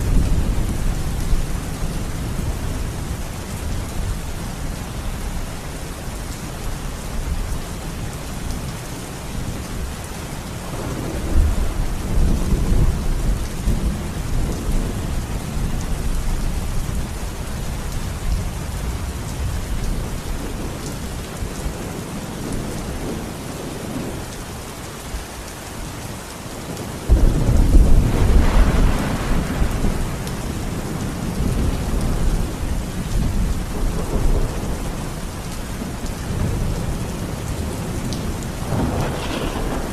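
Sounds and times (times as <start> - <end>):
steady rain falling: 0.0 - 39.9
rolling thunder: 10.6 - 17.0, 27.1 - 39.9
sharp thunderclap: 27.1 - 30.2, 38.6 - 39.9.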